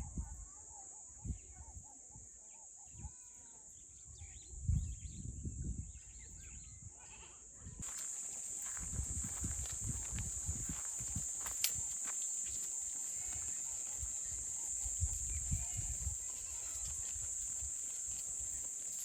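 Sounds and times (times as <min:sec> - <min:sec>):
steady hiss: 0:07.8 - 0:19.0.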